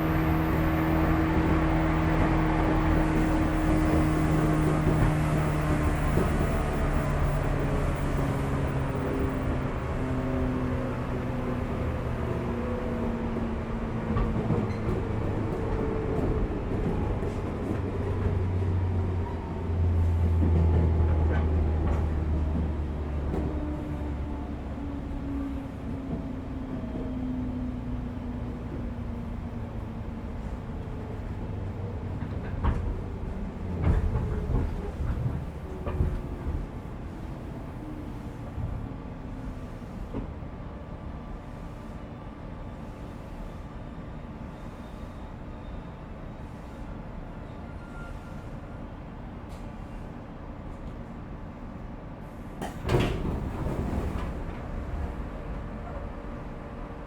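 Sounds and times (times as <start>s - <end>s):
train interior low rumble: 0.0s - 57.0s
train door click: 52.5s - 54.9s.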